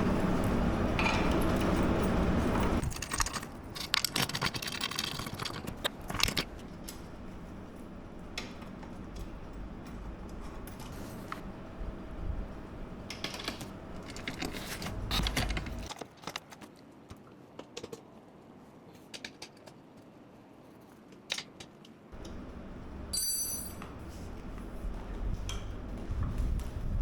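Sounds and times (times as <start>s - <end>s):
metal parts clicking and knocking: 2.8s - 7.0s, 13.0s - 16.5s.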